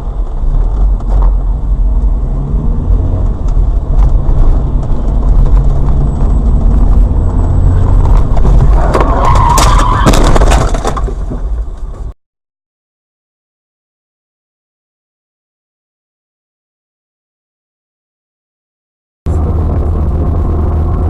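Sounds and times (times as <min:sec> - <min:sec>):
car road and engine rumble: 0:00.0 - 0:12.2, 0:19.3 - 0:21.0.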